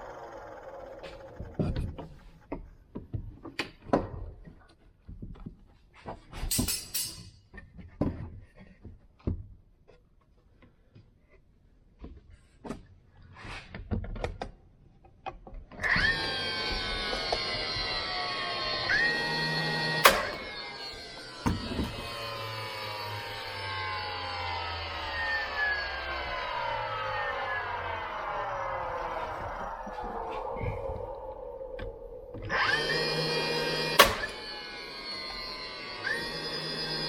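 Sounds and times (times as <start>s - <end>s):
steady pitched tones: 19.9s - 37.0s.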